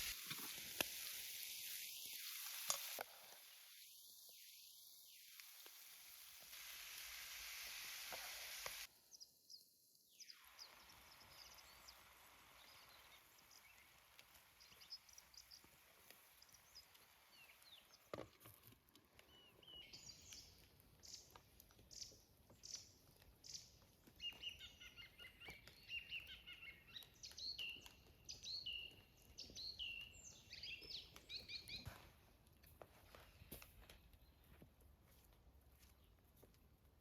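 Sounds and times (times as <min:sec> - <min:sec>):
faint hiss: 0:00.0 - 0:18.1
small bird chirping: 0:08.3 - 0:18.2, 0:19.2 - 0:31.9.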